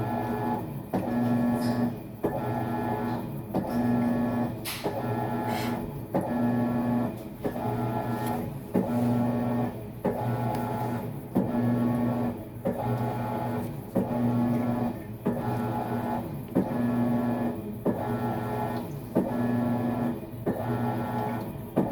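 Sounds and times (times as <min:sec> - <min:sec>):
washer motor humming: 0:00.0 - 0:21.9.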